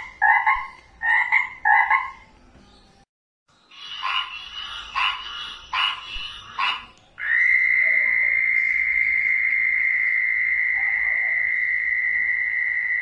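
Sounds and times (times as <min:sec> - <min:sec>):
frog croak: 0:00.0 - 0:02.2, 0:03.8 - 0:13.0
high-pitched frog trill: 0:03.7 - 0:13.0.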